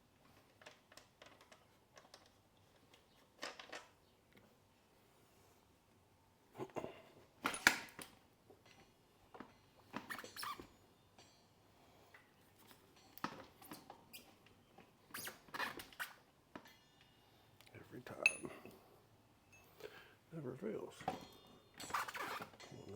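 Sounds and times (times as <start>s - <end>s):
hand tools clicking and clinking: 18.1s - 18.8s, 21.0s - 22.9s.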